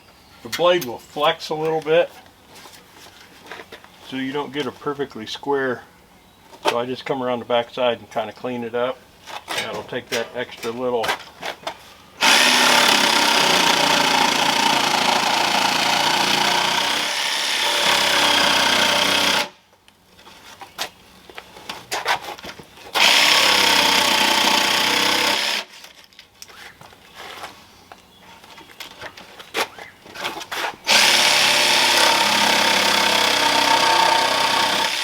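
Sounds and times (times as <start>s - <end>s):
jigsaw cutting wood: 12.2s - 19.6s, 23.0s - 25.7s, 30.9s - 35.0s.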